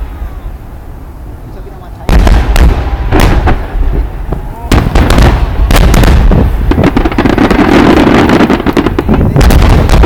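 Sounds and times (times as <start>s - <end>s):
fireworks crackling: 0.0s - 10.0s
fireworks bangs: 1.7s - 10.0s.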